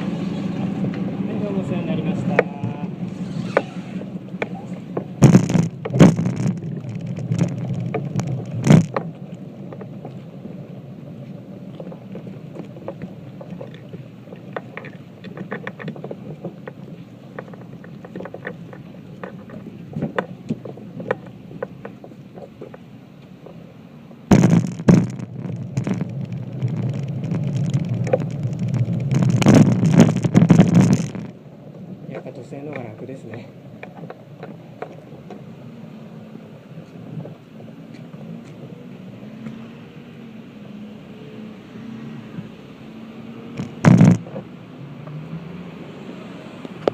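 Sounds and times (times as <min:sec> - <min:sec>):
boat engine humming: 0:00.0 - 0:46.9
knocks and clicks: 0:04.4 - 0:09.9, 0:24.3 - 0:31.4, 0:43.6 - 0:44.5.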